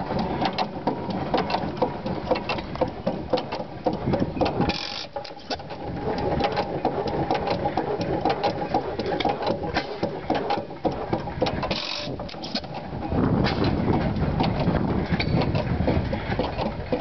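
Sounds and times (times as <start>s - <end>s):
stationary engine clattering: 0.0s - 17.0s.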